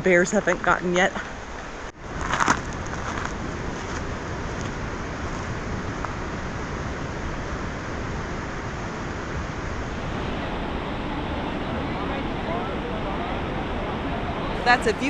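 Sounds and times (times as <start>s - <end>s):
waterfall roaring: 4.2s - 15.0s.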